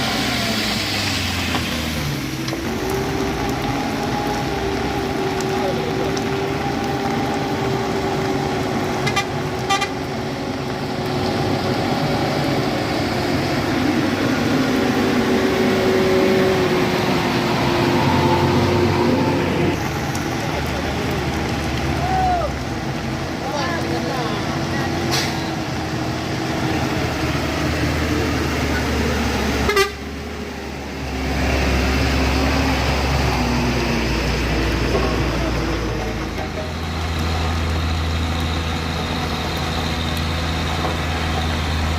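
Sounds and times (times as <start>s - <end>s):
heavy vehicle engine running: 0.0s - 41.9s
horn toots: 29.6s - 30.0s.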